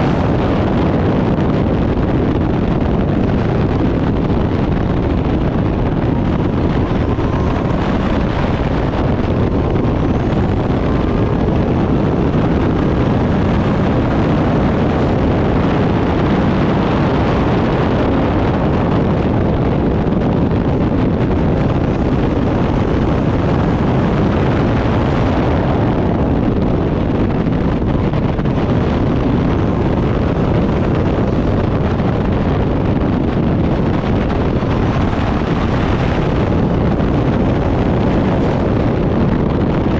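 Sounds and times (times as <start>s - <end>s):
race car engine running hard: 0.0s - 39.9s
wind noise on microphone: 0.0s - 39.9s.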